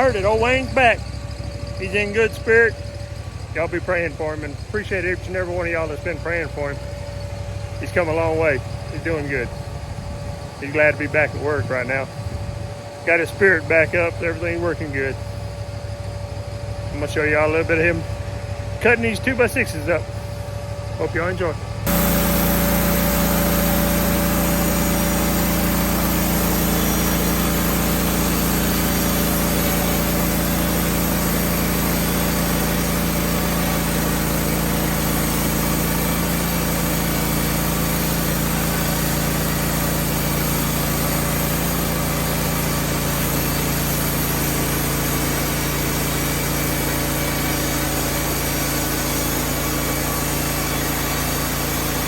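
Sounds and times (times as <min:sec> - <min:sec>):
band sawmill sawing log: 0:00.0 - 0:52.0.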